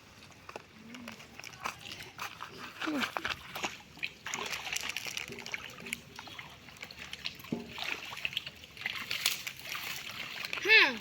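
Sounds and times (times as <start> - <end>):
pond water splashing and sloshing: 0.0 - 11.0
water trickling: 0.0 - 11.0.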